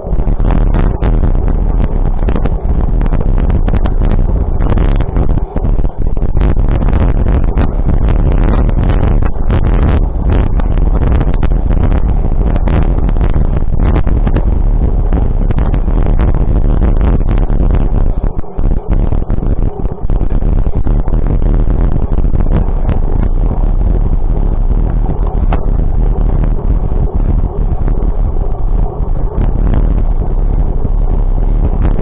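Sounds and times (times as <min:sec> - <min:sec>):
vehicle engine rumbling: 0:00.0 - 0:32.0.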